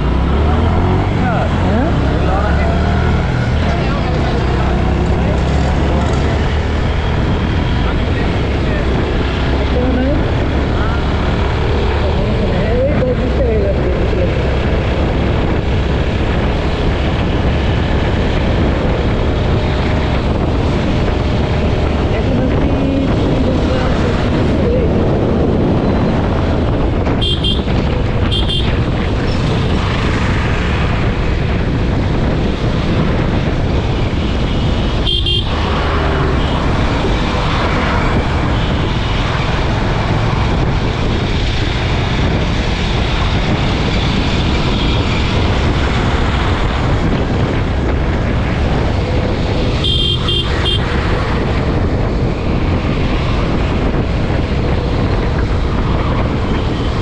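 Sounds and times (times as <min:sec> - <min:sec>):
motorcycle road noise: 0:00.0 - 0:57.0
wind noise: 0:00.0 - 0:57.0
vehicle horn honking: 0:27.2 - 0:27.7, 0:28.3 - 0:28.7, 0:35.0 - 0:35.6, 0:49.8 - 0:50.9.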